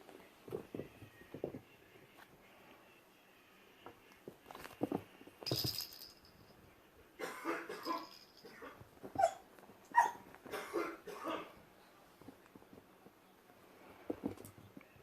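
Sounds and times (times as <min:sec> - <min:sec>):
kittens scuffling: 0:03.8 - 0:06.1.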